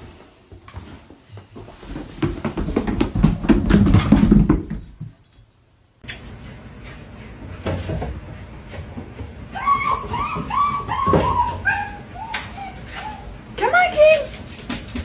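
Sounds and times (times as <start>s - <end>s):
dog paws knocking on stairs: 0.8s - 5.4s.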